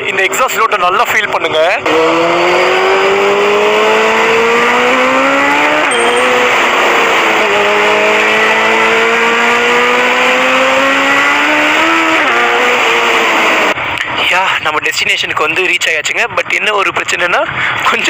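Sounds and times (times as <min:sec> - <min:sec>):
motorcycle engine accelerating: 0:01.8 - 0:13.8.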